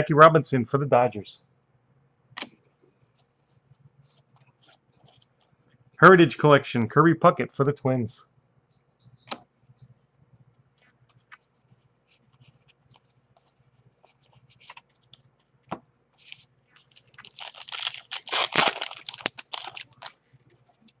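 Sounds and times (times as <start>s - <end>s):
foil wrapper crinkling and tearing: 16.2s - 20.2s.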